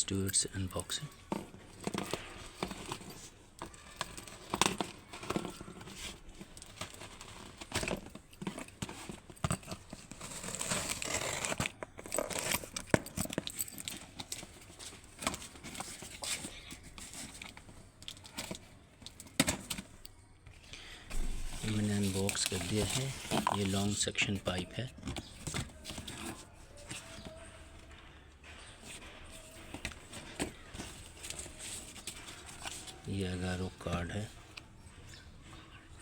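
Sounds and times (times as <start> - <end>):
box and parts clicking and knocking: 0.2 - 35.2
plastic wrap crinkling and tearing: 9.9 - 13.0, 21.2 - 24.0.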